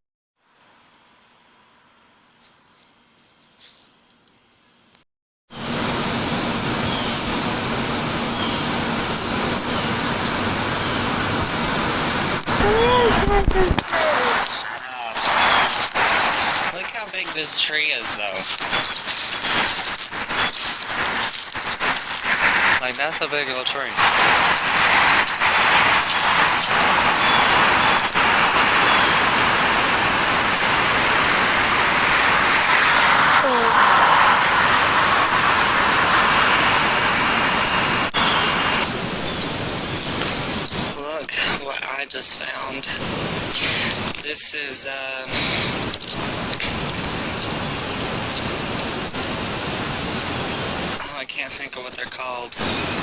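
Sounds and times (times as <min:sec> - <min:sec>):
cicadas buzzing: 0:05.5 - 0:53.0
loud rushing noise: 0:05.6 - 0:41.6.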